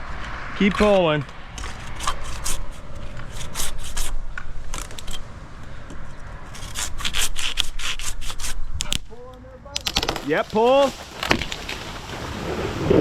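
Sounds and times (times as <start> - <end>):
leafy branches scraping and rustling: 9.8 - 13.0.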